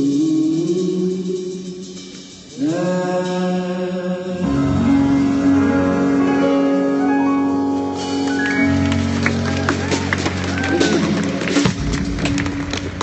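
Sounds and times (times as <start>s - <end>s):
band playing long held notes: 4.4s - 13.0s.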